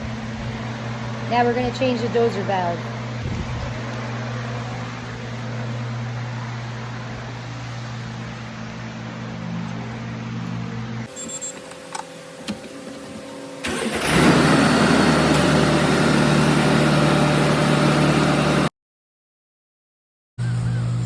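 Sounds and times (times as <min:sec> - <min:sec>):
truck diesel engine running: 0:11.8 - 0:18.7.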